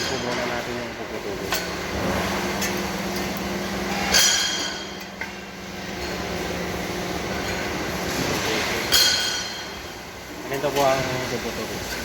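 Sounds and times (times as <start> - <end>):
metal clank with ring: 3.9 - 5.1, 8.9 - 9.8.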